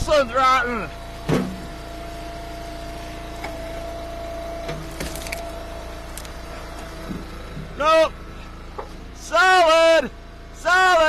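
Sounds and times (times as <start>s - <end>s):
wood splitter engine whine: 0.0s - 11.0s
wood splitting cracks: 5.0s - 6.4s.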